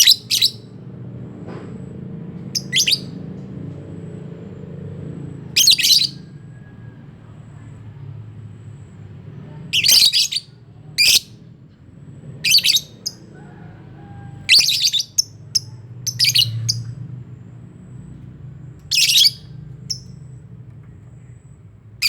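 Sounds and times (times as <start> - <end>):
lovebirds chirping and squawking: 0.0 - 0.7, 2.4 - 3.2, 5.6 - 6.3, 9.8 - 11.4, 12.4 - 17.1, 17.9 - 20.4.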